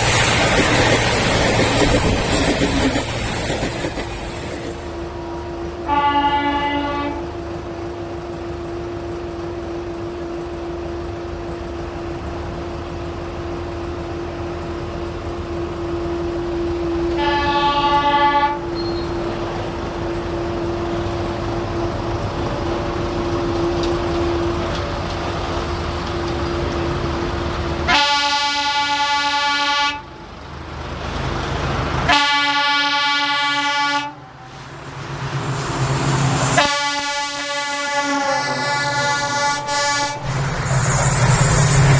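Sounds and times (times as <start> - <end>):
train running rumble: 0.0 - 41.9
train horn blasts: 5.2 - 7.4, 17.1 - 19.1, 27.9 - 30.1, 32.1 - 34.5, 36.5 - 40.3.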